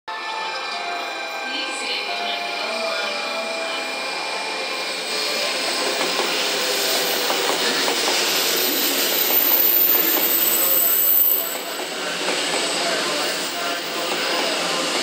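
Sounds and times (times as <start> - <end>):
train wheels rushing on rails: 3.6 - 15.0.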